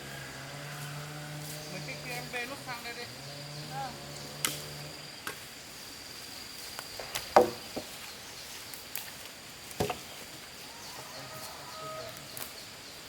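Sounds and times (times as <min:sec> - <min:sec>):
high insect drone: 0:00.0 - 0:13.0
construction knocks: 0:07.0 - 0:07.9.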